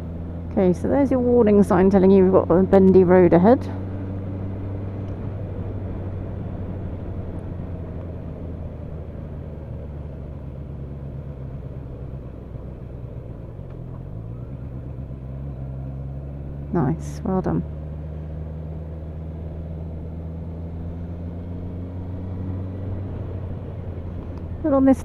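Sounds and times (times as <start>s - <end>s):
motorcycle engine running: 0.0s - 25.0s
wind and road rush: 0.0s - 25.0s.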